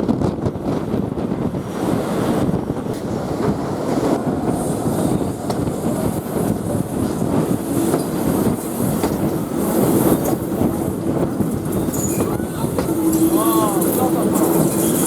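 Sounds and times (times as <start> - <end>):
train carriages rumbling on track: 0.0 - 15.0
wheels clicking on rails: 5.4 - 15.0.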